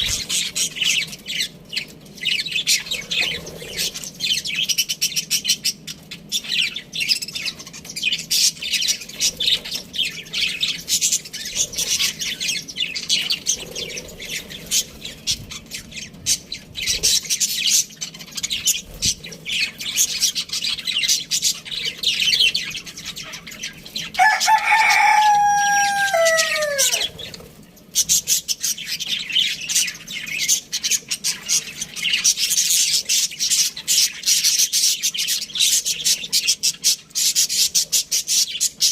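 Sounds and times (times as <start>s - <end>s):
budgies chattering: 0.0s - 38.9s
rooster crowing: 24.2s - 27.3s.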